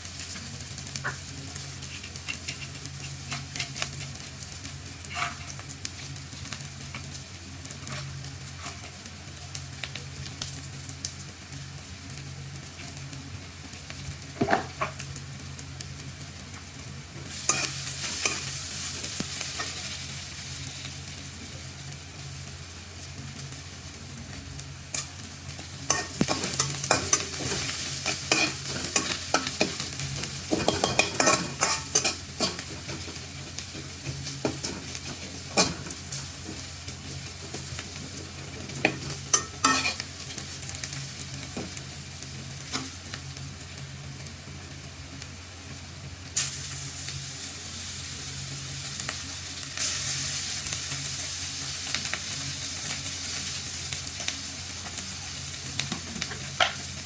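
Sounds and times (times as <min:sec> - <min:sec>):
food sizzling in a pan: 0:00.0 - 0:57.0
spoon scraping a pan: 0:01.8 - 0:04.2, 0:05.0 - 0:05.6, 0:07.9 - 0:08.9, 0:17.3 - 0:18.6, 0:25.9 - 0:33.2, 0:38.7 - 0:40.1.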